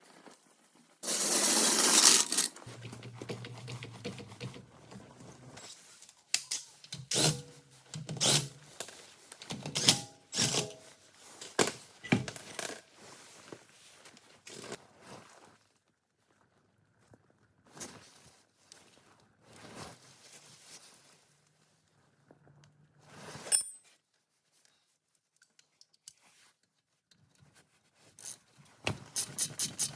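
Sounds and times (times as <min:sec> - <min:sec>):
metallic clicks and knocks of tools: 0:06.3 - 0:10.8.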